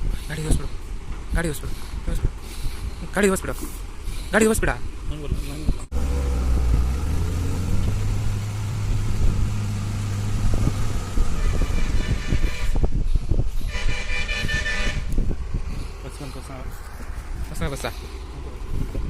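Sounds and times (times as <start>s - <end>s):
heavy lorry engine labouring: 5.9s - 12.8s
lorry horn blasts: 11.2s - 12.8s, 13.7s - 15.1s.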